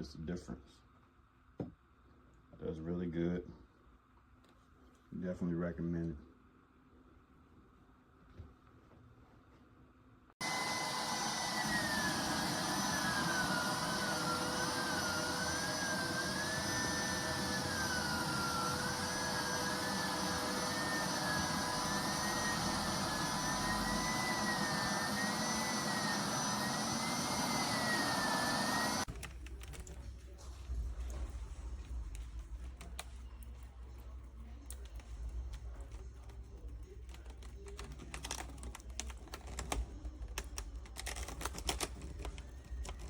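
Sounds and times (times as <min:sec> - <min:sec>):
high wavering whine: 0:10.4 - 0:29.1
carpet cleaner motor running: 0:10.4 - 0:29.8.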